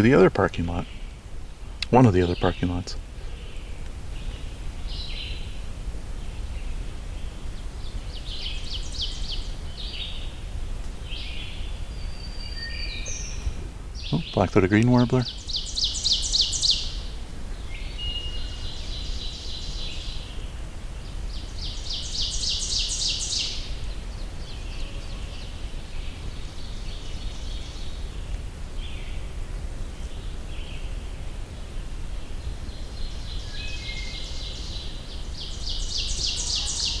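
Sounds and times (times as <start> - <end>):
low outdoor rumble: 0.0 - 22.2
faint birdsong: 0.0 - 37.0
warbler buzzy song: 0.0 - 37.0.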